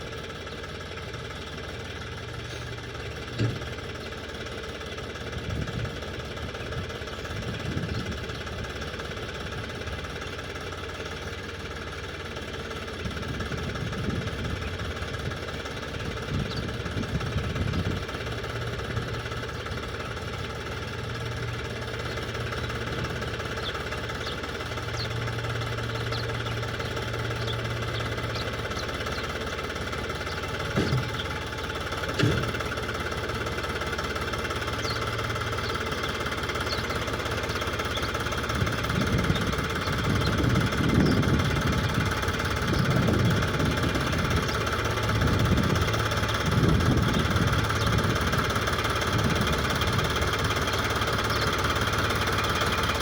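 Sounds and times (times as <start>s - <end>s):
tractor engine running: 0.0s - 53.0s
sharp knocks: 30.6s - 31.4s, 32.1s - 32.6s.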